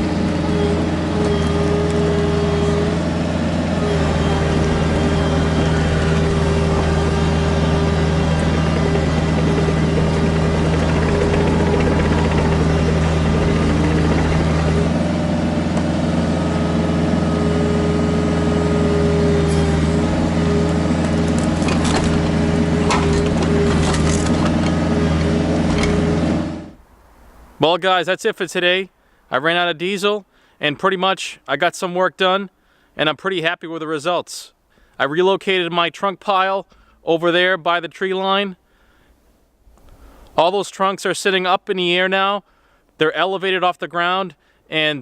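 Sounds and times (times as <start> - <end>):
excavator diesel engine running: 0.0 - 26.8.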